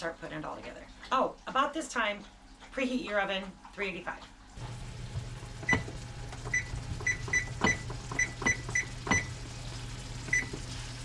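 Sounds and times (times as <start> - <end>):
oven keypad beeps: 5.6 - 9.5, 10.2 - 10.7.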